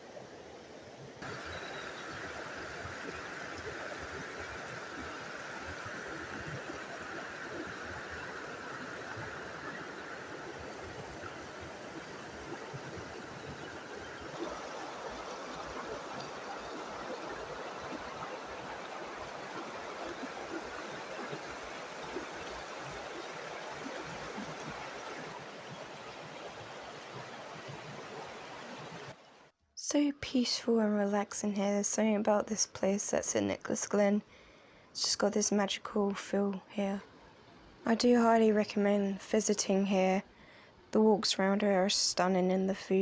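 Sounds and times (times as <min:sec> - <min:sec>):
stream water rushing: 0:00.0 - 0:29.4.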